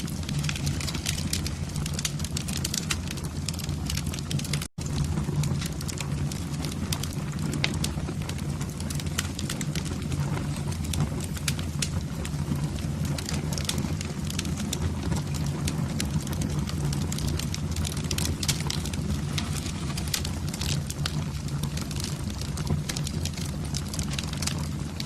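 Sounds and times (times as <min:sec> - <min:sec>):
low rumble of flames: 0:00.0 - 0:25.0
wood fire crackling and popping: 0:00.0 - 0:25.0.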